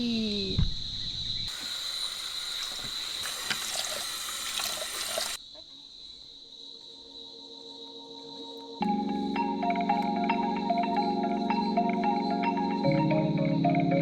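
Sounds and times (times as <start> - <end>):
crickets chirring: 0.0 - 14.0
tap running into sink: 1.5 - 5.4.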